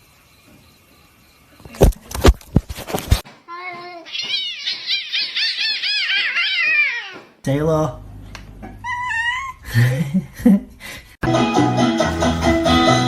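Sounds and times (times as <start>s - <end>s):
sharp knocks: 3.1s - 7.5s
cat meowing: 3.6s - 7.4s, 8.8s - 9.6s.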